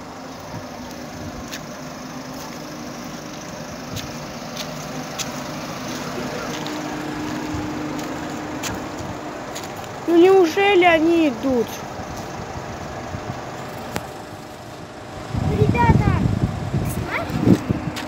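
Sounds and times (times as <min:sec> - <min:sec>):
minibus engine idling: 0:00.0 - 0:18.0.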